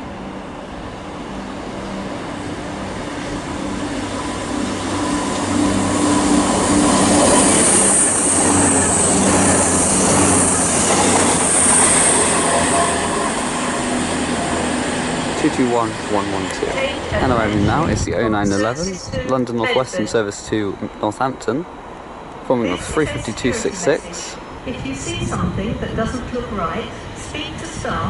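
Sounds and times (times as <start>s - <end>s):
passing train rumble: 0.0s - 28.0s
wheels hissing on rails: 0.7s - 17.2s.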